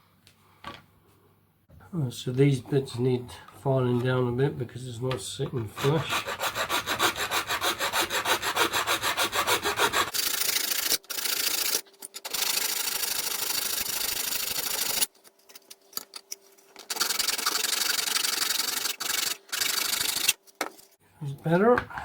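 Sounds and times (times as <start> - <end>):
file rasping on plastic: 5.7 - 11.8.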